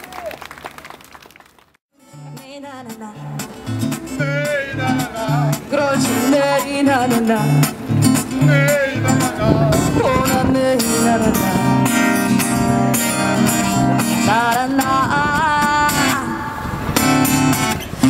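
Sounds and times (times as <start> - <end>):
person singing: 2.0 - 12.0, 14.2 - 16.8
acoustic guitar strumming: 2.0 - 18.0.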